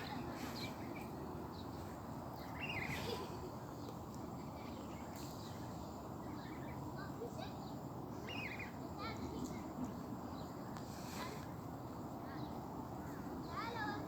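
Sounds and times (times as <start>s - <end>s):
birds chirping: 0.0s - 10.6s.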